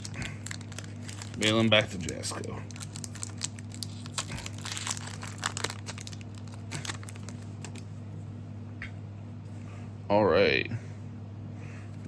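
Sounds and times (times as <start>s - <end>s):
foil wrapper crinkling: 0.0s - 7.9s
low electrical hum: 0.0s - 12.0s.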